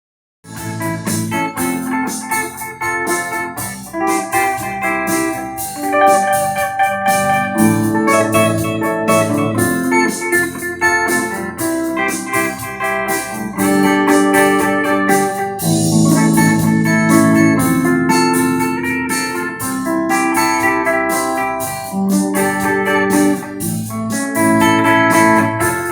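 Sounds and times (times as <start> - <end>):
accompaniment with steady beat: 0.5 - 25.9
clean electric guitar: 0.5 - 25.9.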